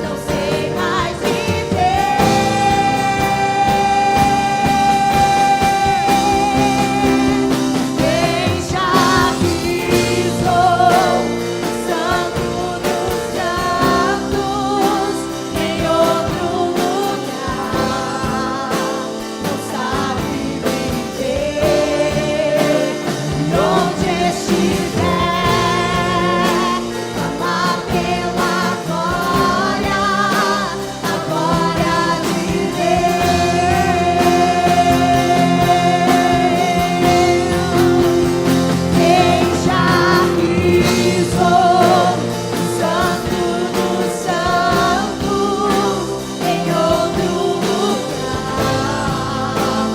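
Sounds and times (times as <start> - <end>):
person singing with vibrato: 0.0 - 49.9
sustained instrumental chords: 0.0 - 49.9.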